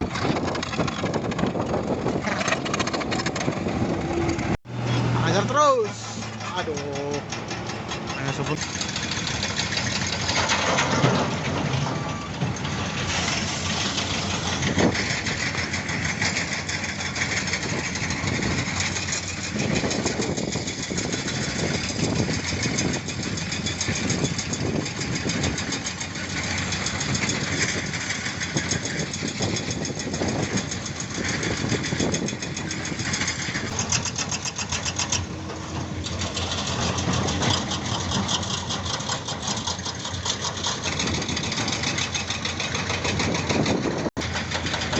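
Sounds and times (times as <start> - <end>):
fast even clatter: 0.0 - 4.6, 5.3 - 44.9
heavy diesel engines running: 0.0 - 44.9.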